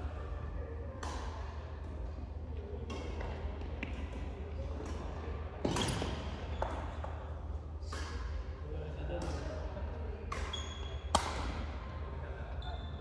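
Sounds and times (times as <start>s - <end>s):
racket hitting shuttlecock: 1.0s - 2.1s, 2.8s - 7.2s, 7.9s - 8.4s, 10.3s - 11.7s.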